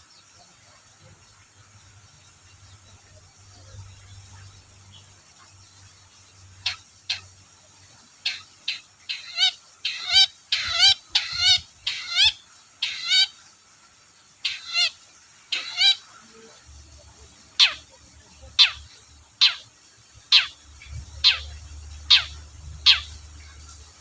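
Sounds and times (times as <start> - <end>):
bird harsh calls: 8.2 - 13.4, 14.4 - 16.2, 17.5 - 23.9.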